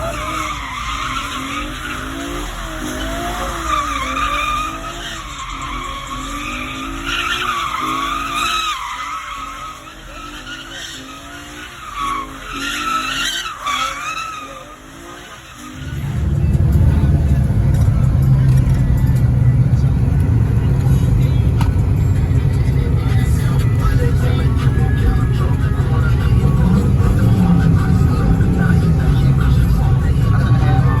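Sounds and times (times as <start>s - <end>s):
tyres squealing: 0.0s - 19.9s
car engine revving: 0.0s - 31.0s.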